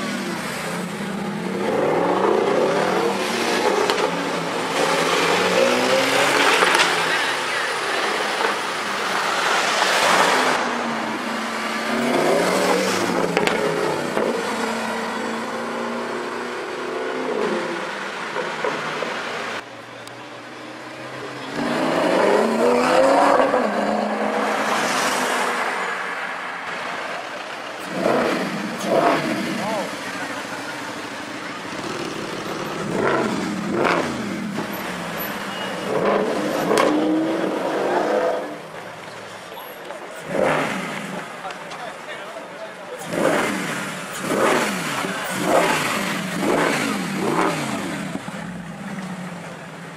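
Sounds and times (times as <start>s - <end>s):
sports car engine revving: 27.8s - 31.0s, 31.6s - 38.6s, 40.2s - 41.4s, 43.0s - 49.5s.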